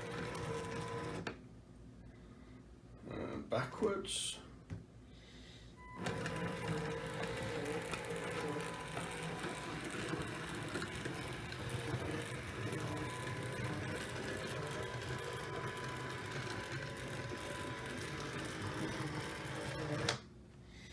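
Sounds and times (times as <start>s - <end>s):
electric motor whine: 6.0s - 20.2s.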